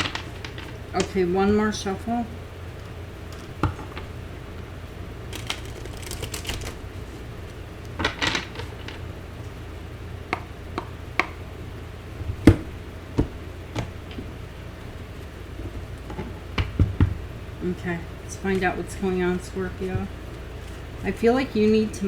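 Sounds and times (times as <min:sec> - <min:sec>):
cards being shuffled: 0:05.2 - 0:09.0, 0:18.5 - 0:21.1
cards tapped down: 0:05.3 - 0:09.0.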